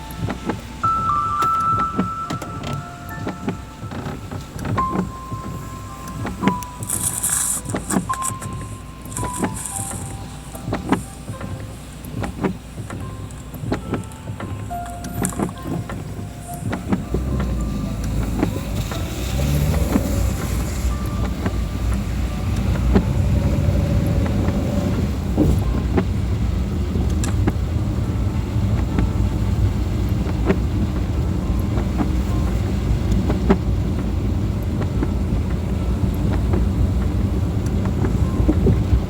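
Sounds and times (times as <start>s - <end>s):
car engine and tyres rumbling: 0.0s - 39.0s
raindrops ticking on car: 0.0s - 39.0s.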